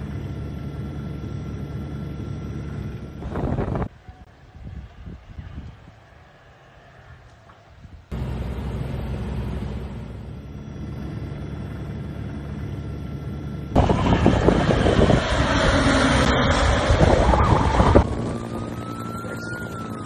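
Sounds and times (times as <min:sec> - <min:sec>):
steady engine rumble: 0:00.0 - 0:20.0
loud rough rushing noise: 0:13.7 - 0:18.8.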